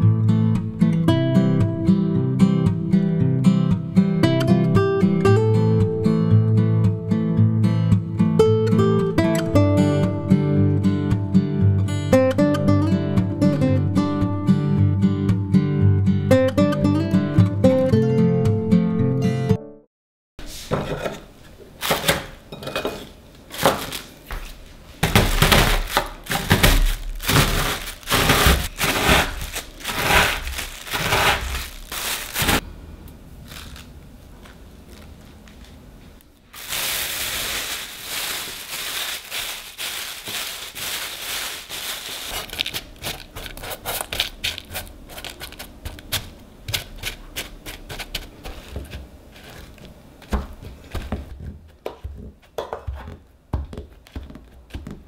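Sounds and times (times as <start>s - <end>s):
plastic bag crinkling: 23.5s - 32.6s, 33.4s - 35.8s, 36.4s - 46.2s
cookies crunching: 25.0s - 32.6s, 33.4s - 35.7s, 36.6s - 51.3s.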